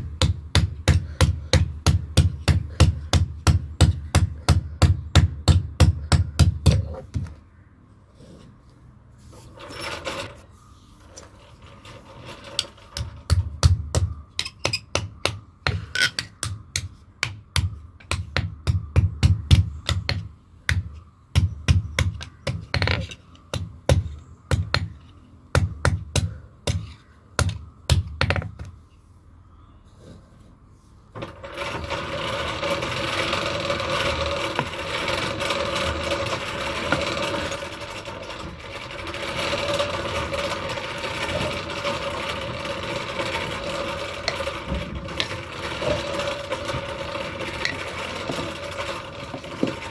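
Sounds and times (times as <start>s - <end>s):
grinder grinding with hum: 31.2s - 49.9s.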